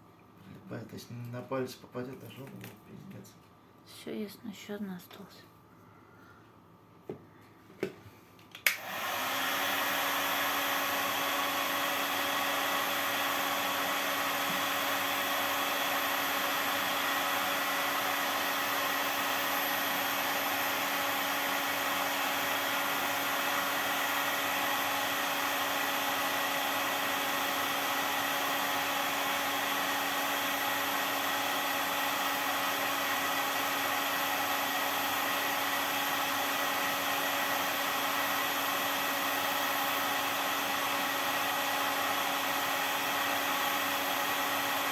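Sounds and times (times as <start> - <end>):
heat gun switch click: 8.6 - 8.9
heat gun blowing: 8.6 - 44.9.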